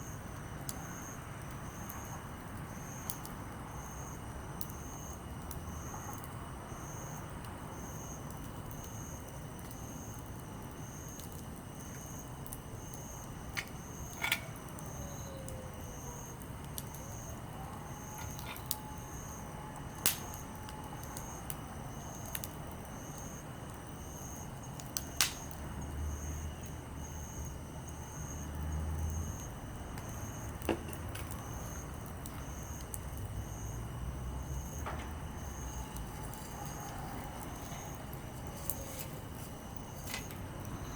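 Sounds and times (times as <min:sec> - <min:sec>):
campfire hissing and popping: 0:00.0 - 0:40.9
pulsing insect call: 0:11.8 - 0:22.2, 0:31.4 - 0:40.9.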